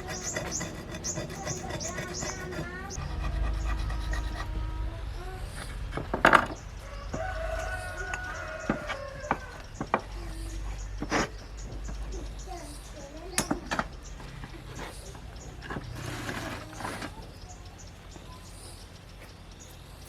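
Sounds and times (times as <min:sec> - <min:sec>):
hand filing strokes: 0:00.0 - 0:04.7.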